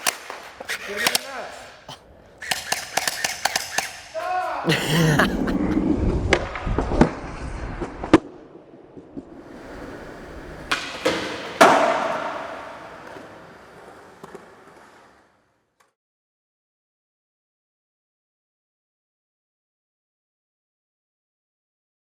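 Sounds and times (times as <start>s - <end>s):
skateboard clacking on ground: 0.0s - 1.8s, 2.4s - 4.1s, 9.3s - 15.4s
skateboard wheels rolling on concrete: 0.0s - 4.0s, 4.6s - 16.0s.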